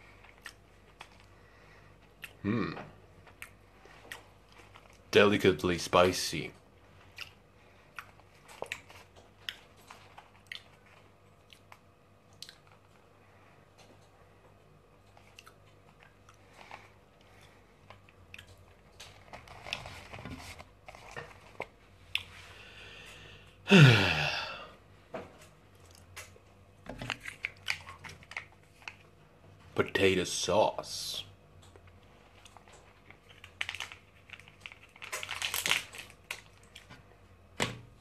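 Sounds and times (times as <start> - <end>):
chewing fried potatoes: 0.0 - 2.5, 3.2 - 5.1, 6.9 - 22.5, 27.0 - 29.2, 31.6 - 37.1
wet mouth clicks: 12.3 - 12.6.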